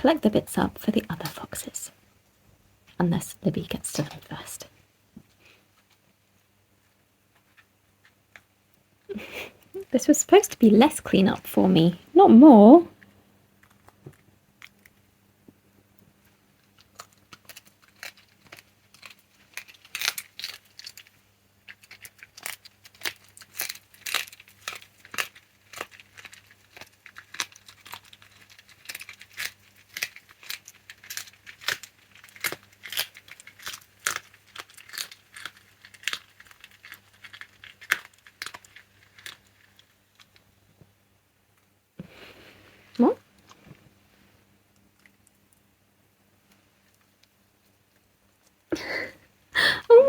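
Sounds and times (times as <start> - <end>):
fox crunching bones: 16.4 - 40.5.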